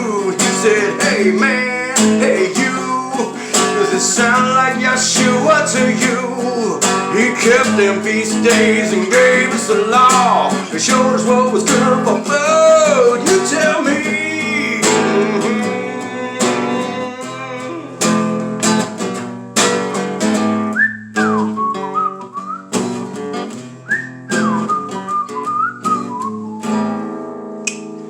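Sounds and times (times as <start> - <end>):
acoustic guitar strumming: 0.0 - 28.0
whistled melody: 20.6 - 23.0, 23.7 - 27.1.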